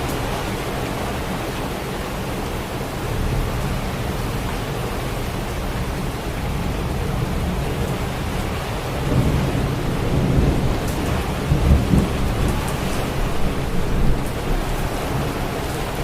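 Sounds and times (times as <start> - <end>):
heavy rain falling: 0.0 - 16.0
thunder rolling: 8.4 - 16.0.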